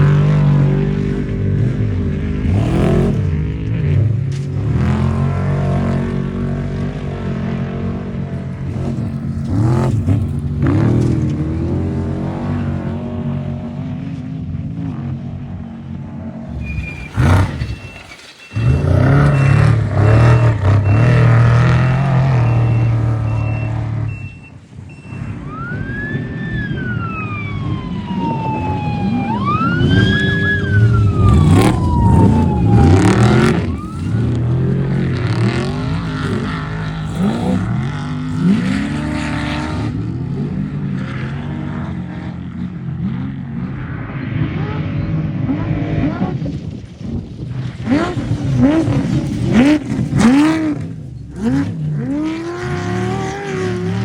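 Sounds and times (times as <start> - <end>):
race truck engines revving: 0.0 - 54.0
siren-like wail: 16.5 - 23.9, 25.0 - 39.9.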